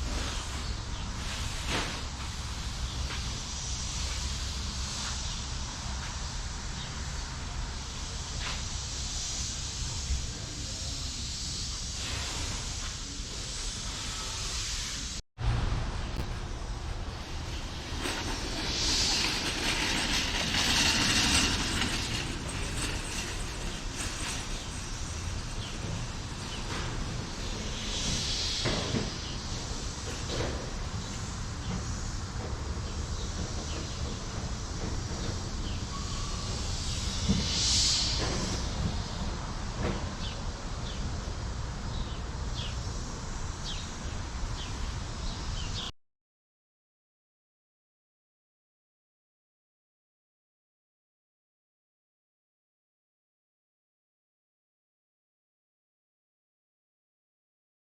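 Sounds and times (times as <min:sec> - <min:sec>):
steady hiss: 0:00.0 - 0:15.2, 0:16.2 - 0:45.8
hissing white noise from speaker: 0:00.0 - 0:19.2.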